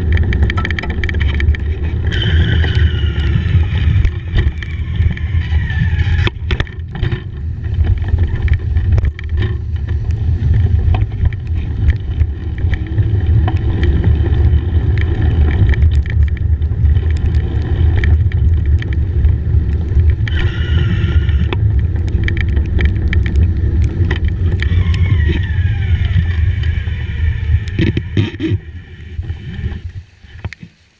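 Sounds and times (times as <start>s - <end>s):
bicycle clicks and rattles: 0.0s - 30.7s
wind rumble on microphone: 0.0s - 30.9s.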